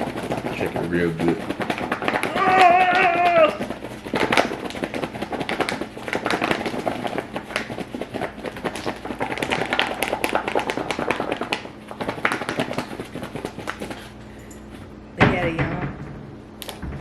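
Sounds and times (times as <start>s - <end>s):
container shaken by hand rattling: 0.0s - 14.2s.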